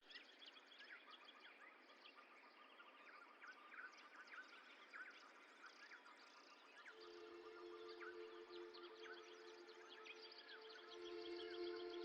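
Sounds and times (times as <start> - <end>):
small birds chirping: 0.0 - 12.0
steady background hiss: 6.9 - 12.0.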